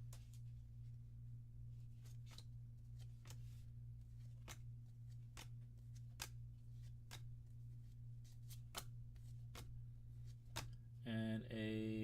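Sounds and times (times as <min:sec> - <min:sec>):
steady low hum: 0:00.0 - 0:12.0
trading cards flicking: 0:04.2 - 0:07.4, 0:08.3 - 0:10.8.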